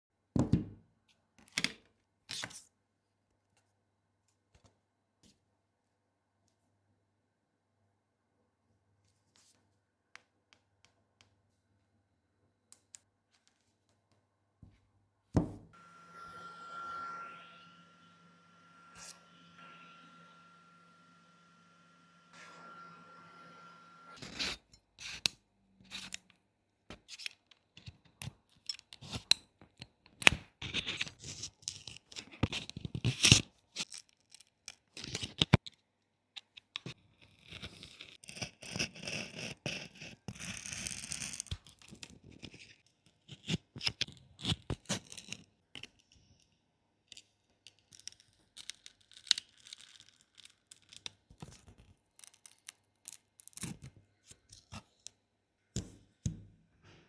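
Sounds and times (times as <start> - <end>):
tearing and scraping noise: 47.1 - 55.1.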